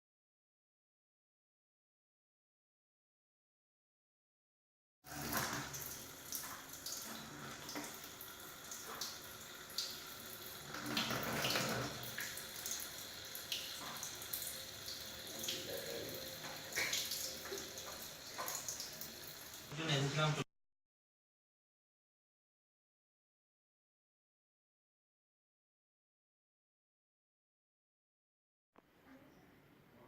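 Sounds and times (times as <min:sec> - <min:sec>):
fountain water trickling: 0:05.1 - 0:19.7
water drips and splashes: 0:05.1 - 0:19.7.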